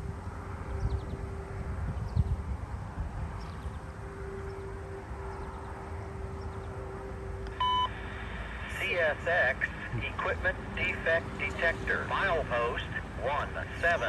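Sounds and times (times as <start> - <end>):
faint steady hum: 0.0 - 14.0
scanner radio beep: 7.6 - 14.0.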